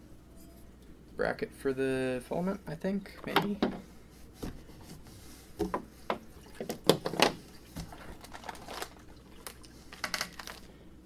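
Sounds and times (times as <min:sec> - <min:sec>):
parts being set down: 0:03.2 - 0:04.6
packaging crinkling: 0:07.9 - 0:10.8.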